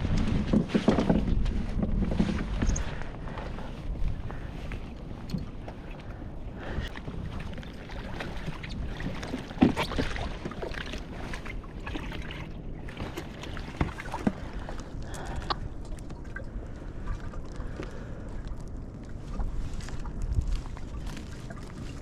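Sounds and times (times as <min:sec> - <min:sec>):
gear knocking against boat: 0:00.0 - 0:02.9
wind on microphone: 0:00.0 - 0:10.6, 0:19.1 - 0:22.0
water sloshing against hull: 0:00.0 - 0:22.0.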